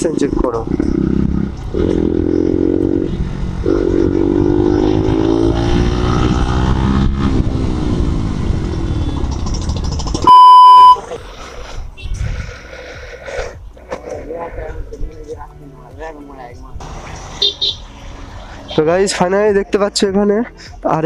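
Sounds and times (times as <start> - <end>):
motorcycle engine revving: 0.7 - 11.0
electronic beep: 10.2 - 11.0.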